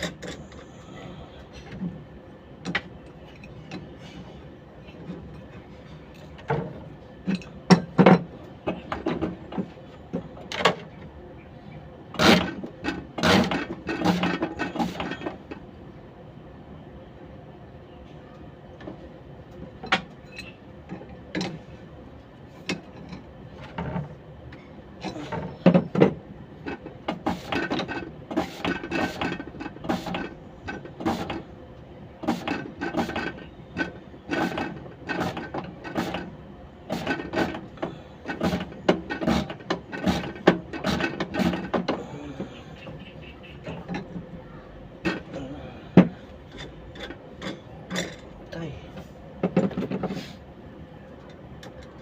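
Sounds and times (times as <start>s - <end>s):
metal tools and parts clinking: 0.0s - 0.7s, 20.1s - 20.6s, 46.4s - 48.3s.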